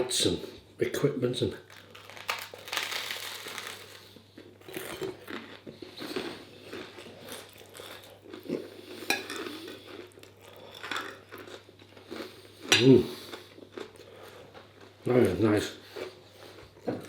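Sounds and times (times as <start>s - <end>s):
chewing: 1.8s - 14.9s.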